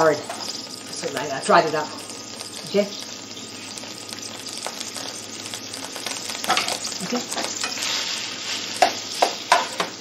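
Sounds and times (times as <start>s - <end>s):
noodles sizzling in a pan: 0.0s - 10.0s
spoon knocking against pan: 8.8s - 10.0s.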